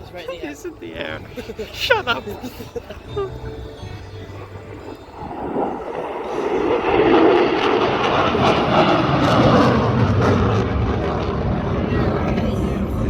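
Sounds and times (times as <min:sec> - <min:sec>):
jet engine roar: 0:04.8 - 0:13.0.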